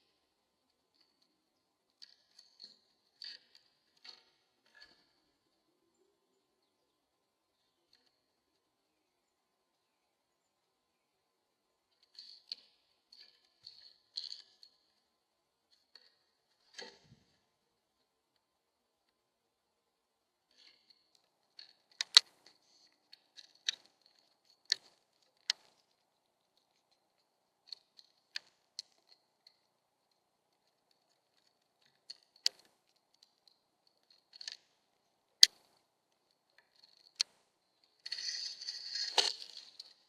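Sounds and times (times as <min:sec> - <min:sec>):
scratching and rustling: 0:20.5 - 0:40.0.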